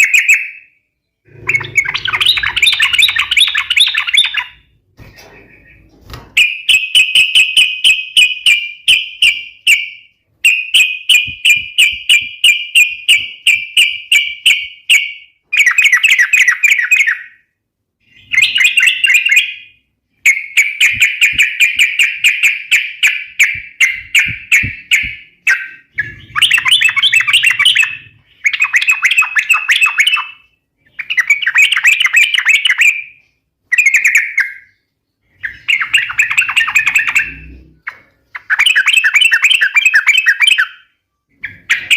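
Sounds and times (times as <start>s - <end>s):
bird singing chattering phrases: 1.2s - 6.0s, 18.0s - 41.9s.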